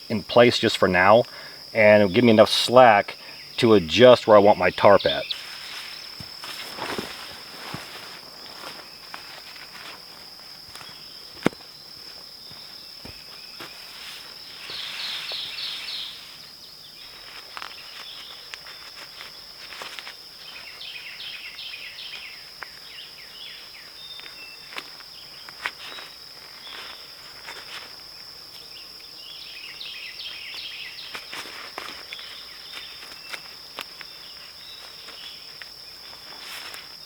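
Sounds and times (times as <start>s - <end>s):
insect drone: 0.0s - 37.0s
footsteps: 5.1s - 15.6s
rustling: 5.2s - 21.2s, 24.1s - 28.7s, 30.5s - 37.0s.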